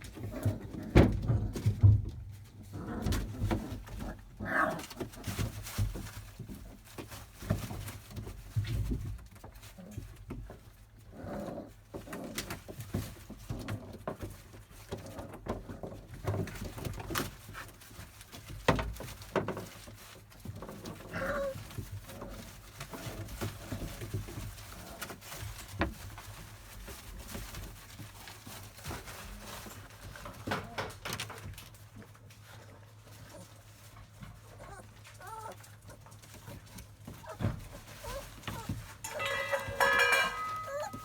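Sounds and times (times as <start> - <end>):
small knocks and scuffles: 5.0 - 10.8, 12.1 - 41.0
puppies whining and grunting: 20.6 - 23.9, 34.2 - 41.0.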